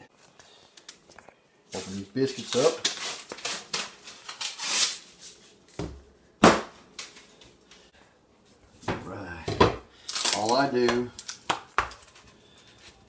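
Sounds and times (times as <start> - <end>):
paper wrapper rustling and tearing: 1.8 - 5.3, 10.1 - 12.4.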